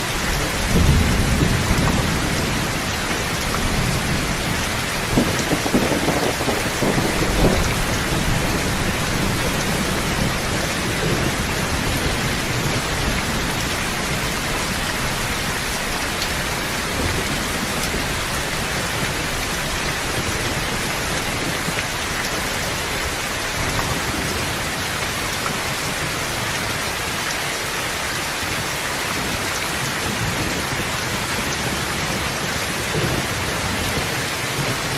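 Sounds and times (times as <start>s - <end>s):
heavy rain falling: 0.0s - 34.9s
low thunder rumbling: 0.2s - 26.4s.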